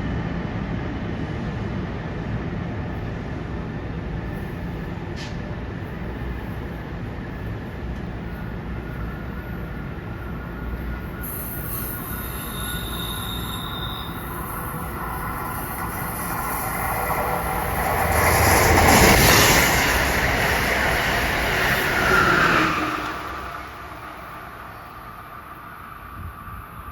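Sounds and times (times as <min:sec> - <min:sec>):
train rumble: 0:00.0 - 0:26.9
thin wheel squeal: 0:11.2 - 0:16.8.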